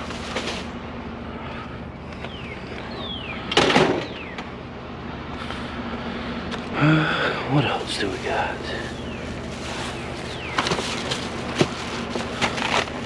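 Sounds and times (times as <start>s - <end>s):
loud rustle: 0.0s - 0.8s, 7.8s - 13.0s
vehicle engine idling: 0.0s - 13.0s.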